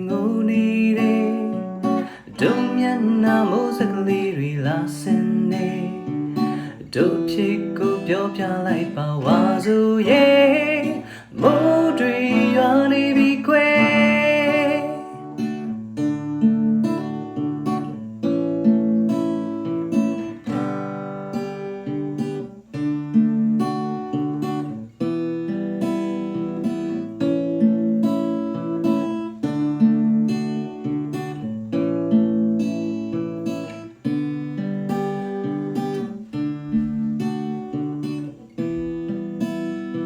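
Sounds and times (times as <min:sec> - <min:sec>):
person singing: 0:00.0 - 0:15.3
acoustic guitar strumming: 0:00.0 - 0:40.0.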